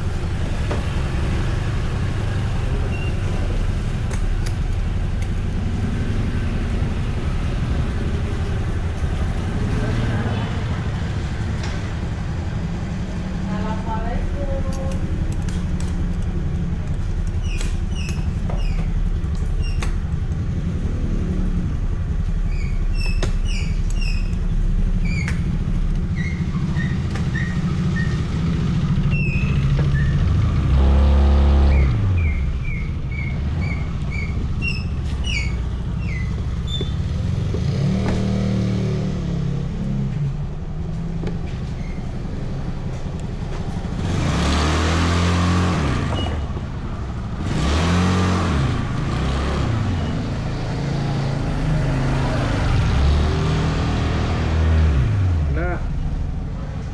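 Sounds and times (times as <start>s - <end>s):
traffic engines droning: 0.0s - 56.9s
engine accelerating loudly: 26.8s - 34.3s, 36.6s - 40.2s, 43.4s - 55.8s.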